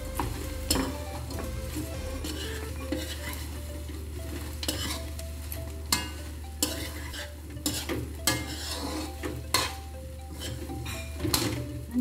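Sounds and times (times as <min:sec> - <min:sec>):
chicken wings sizzling in a wok: 0:00.0 - 0:12.0
metal spatula scraping and stirring: 0:00.2 - 0:05.2, 0:05.9 - 0:11.7
spatula clacking against pan: 0:05.9 - 0:11.6.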